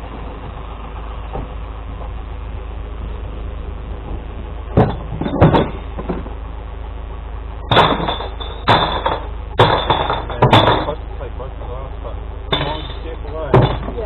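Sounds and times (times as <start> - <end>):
truck engine idling: 0.0 - 14.0
glass and bin clattering: 4.8 - 6.2, 7.7 - 11.0, 12.5 - 14.0
sharp metal clanks: 7.7 - 11.0, 12.5 - 14.0.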